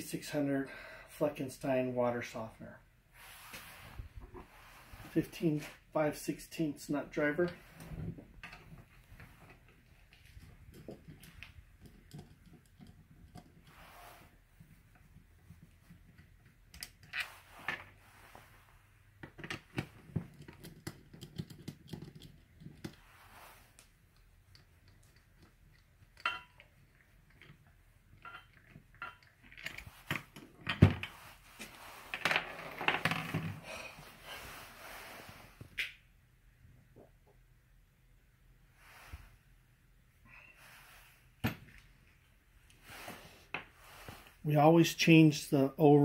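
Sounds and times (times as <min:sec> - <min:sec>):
tools and parts clicking and rattling: 0:08.4 - 0:13.8, 0:19.1 - 0:23.0, 0:24.0 - 0:31.2.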